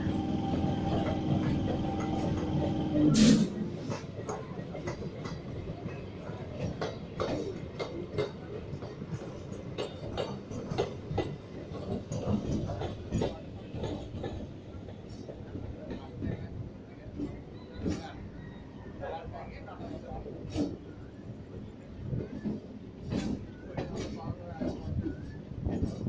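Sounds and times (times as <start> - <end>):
wheels clacking over rail joints: 0.0 - 18.2
train hum: 0.0 - 26.0
train rumbling: 0.0 - 26.0.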